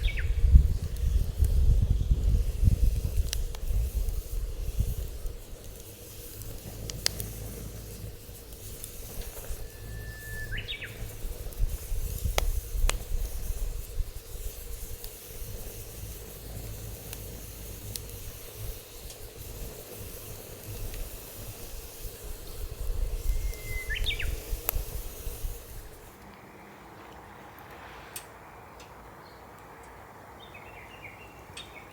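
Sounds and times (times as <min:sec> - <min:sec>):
wind rumble on microphone: 0:00.0 - 0:26.1
wood fire crackling and popping: 0:00.0 - 0:26.4
bird whistling call: 0:09.6 - 0:11.0, 0:23.3 - 0:24.4.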